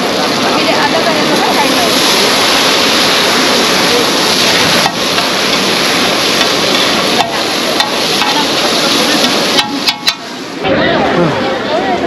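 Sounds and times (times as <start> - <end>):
chicken sizzling on a pan: 0.0 - 10.5
metal spatulas clacking on pan: 6.3 - 8.6, 9.2 - 10.3.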